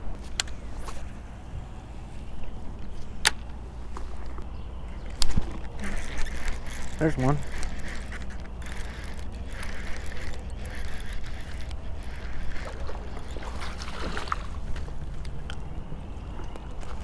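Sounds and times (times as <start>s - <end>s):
water splashing: 8.9s - 15.0s.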